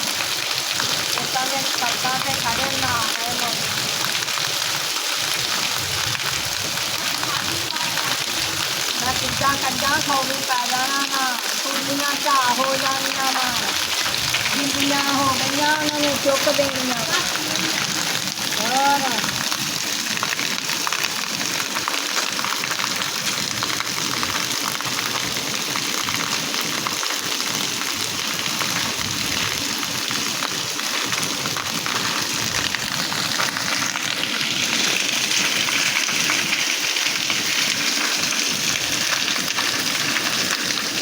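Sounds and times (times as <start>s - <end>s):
steady rain falling: 0.0s - 41.0s.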